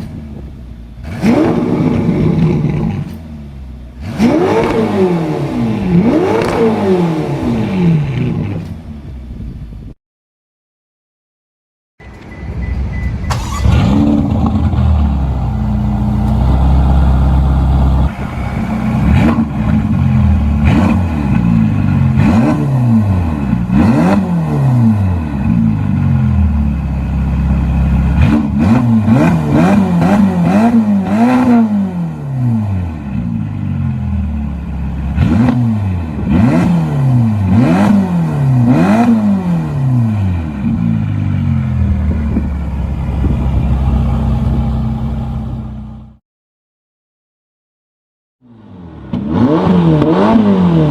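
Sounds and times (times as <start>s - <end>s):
car engine revving in quick blips: 4.0s - 8.8s, 12.7s - 15.2s.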